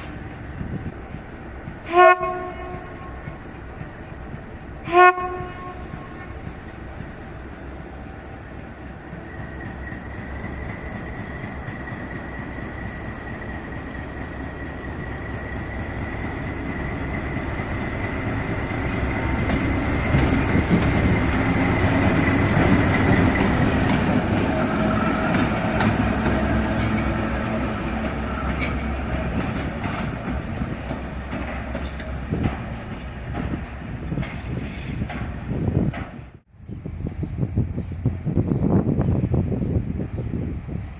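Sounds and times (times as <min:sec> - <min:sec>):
train approaching: 0:00.0 - 0:40.9.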